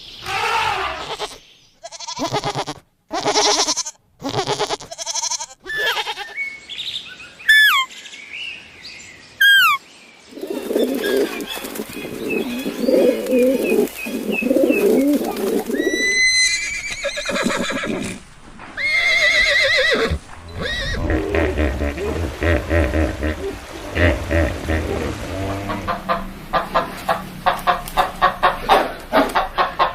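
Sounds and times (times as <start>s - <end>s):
rising animal call: 0.2s - 1.2s, 10.5s - 18.2s, 18.8s - 29.5s
high quavering cries: 0.2s - 6.4s, 7.5s - 7.9s, 9.4s - 9.8s, 10.8s - 18.2s
low wavering animal calls: 10.5s - 16.9s, 19.9s - 29.5s
sharp falling animal calls: 10.6s - 18.0s.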